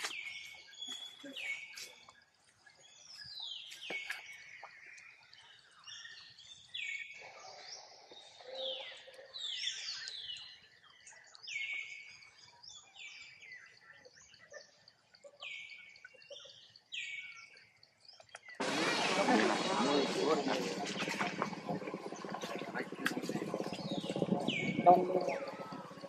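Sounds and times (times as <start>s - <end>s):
birds whistling downward notes: 18.6s - 26.0s.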